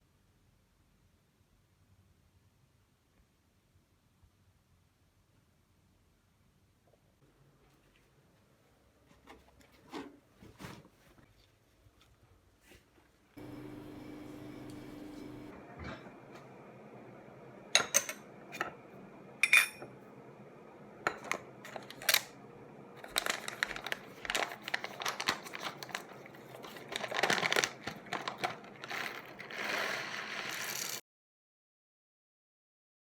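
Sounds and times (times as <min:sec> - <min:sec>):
clicks and knocks of small objects: 0:23.0 - 0:31.0
rustling: 0:23.0 - 0:31.0.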